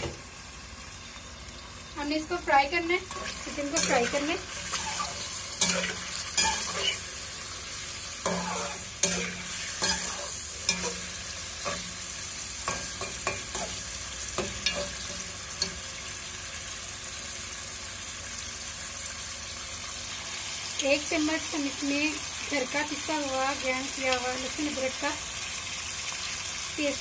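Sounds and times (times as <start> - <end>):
chicken sizzling in hot oil: 0.0 - 27.0
metal spatula scraping a pan: 3.0 - 12.0, 14.4 - 15.8.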